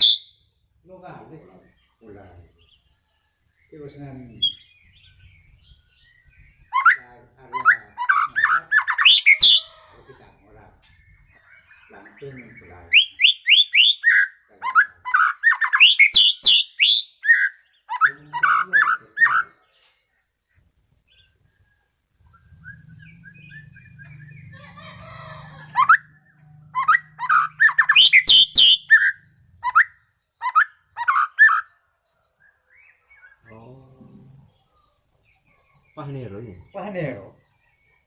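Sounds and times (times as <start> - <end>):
bird singing whistles and chatters: 0.0 - 0.4, 3.7 - 20.0, 21.0 - 31.8.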